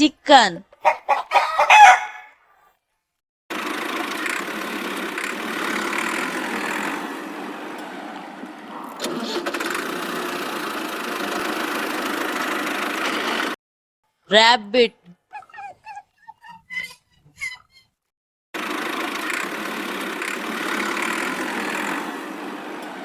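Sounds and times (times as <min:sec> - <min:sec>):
hens clucking: 0:00.8 - 0:02.3, 0:14.9 - 0:17.7
chicken call: 0:00.8 - 0:02.4, 0:15.0 - 0:17.8.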